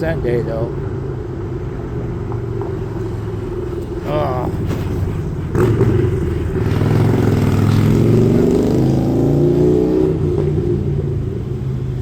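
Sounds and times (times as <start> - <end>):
road noise: 0.0 - 12.0
car engine accelerating: 4.5 - 12.0.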